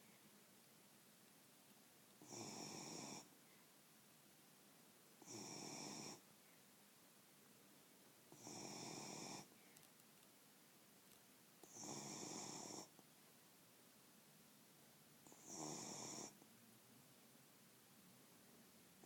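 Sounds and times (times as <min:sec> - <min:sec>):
quiet breathing: 0:00.0 - 0:00.4, 0:02.1 - 0:03.8, 0:05.2 - 0:06.8, 0:08.3 - 0:10.5, 0:11.6 - 0:13.1, 0:15.2 - 0:16.6
dog snoring: 0:02.2 - 0:03.3, 0:05.2 - 0:06.2, 0:08.3 - 0:09.5, 0:11.6 - 0:12.9, 0:15.2 - 0:16.4.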